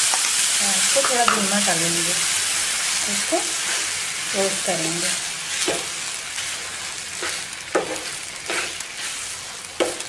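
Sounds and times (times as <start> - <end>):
food sizzling in a frying pan: 0.0 - 10.0
stirring scrapes against pan: 3.5 - 4.1, 5.5 - 10.0.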